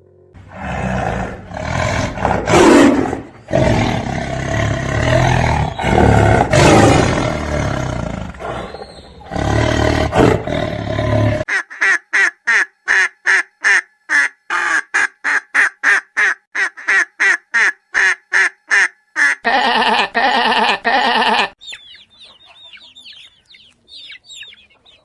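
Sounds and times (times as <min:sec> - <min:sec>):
lion roaring: 0:00.0 - 0:11.4.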